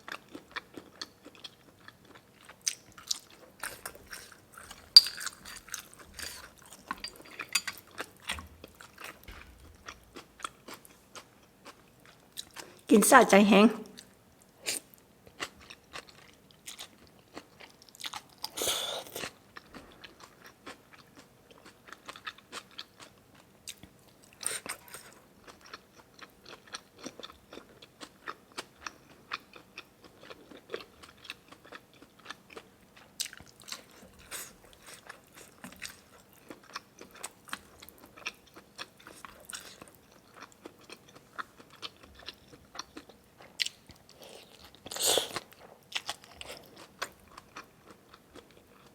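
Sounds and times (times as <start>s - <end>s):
person chewing and biting: 0.1s - 12.7s, 24.6s - 48.9s.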